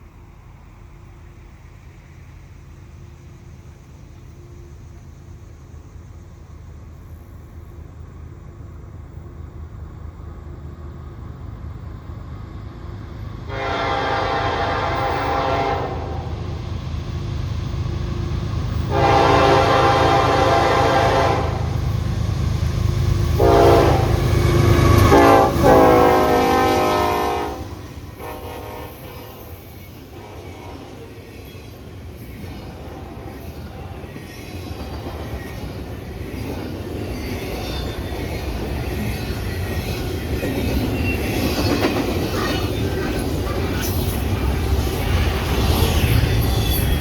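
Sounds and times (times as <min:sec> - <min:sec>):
train cars rolling by: 0:00.0 - 0:47.0
train air horn blasts: 0:13.5 - 0:16.4, 0:18.9 - 0:21.8, 0:23.4 - 0:31.1.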